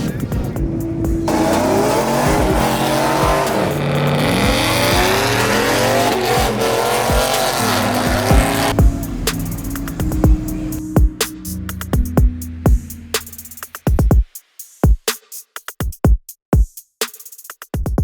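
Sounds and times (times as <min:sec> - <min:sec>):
music with steady beat: 0:00.0 - 0:18.0
tires squealing: 0:01.2 - 0:10.8.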